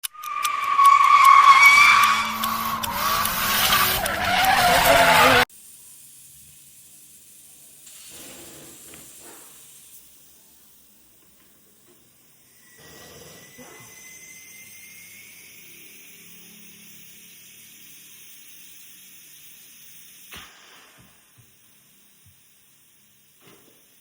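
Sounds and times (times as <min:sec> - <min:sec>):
car tyres screeching: 0:00.0 - 0:05.5
engine revving: 0:00.0 - 0:05.5.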